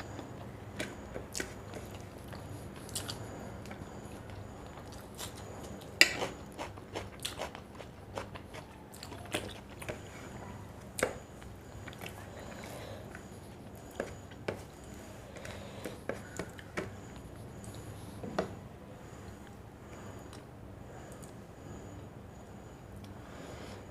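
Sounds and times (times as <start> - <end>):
person chewing food: 0.0 - 18.3.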